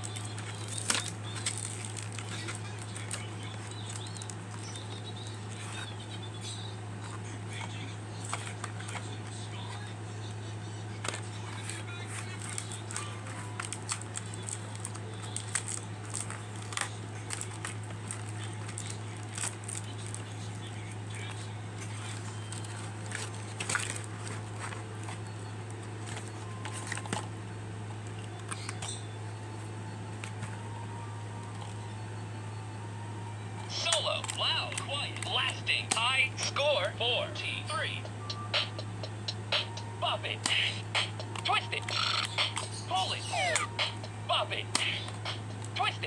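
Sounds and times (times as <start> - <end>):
plastic toy and packaging clicks: 0.0 - 6.3, 11.0 - 27.4, 33.7 - 36.6, 38.6 - 46.0
steady low hum: 0.0 - 46.0.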